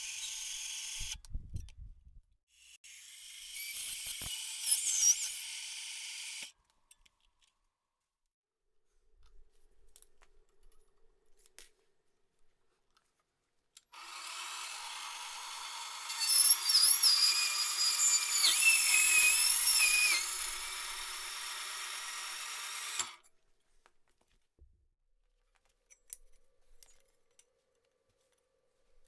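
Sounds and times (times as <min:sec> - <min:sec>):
power tool cutting with whine: 0:00.0 - 0:01.2, 0:02.9 - 0:06.5, 0:14.0 - 0:23.2
power tool running: 0:00.0 - 0:01.2, 0:14.0 - 0:23.2.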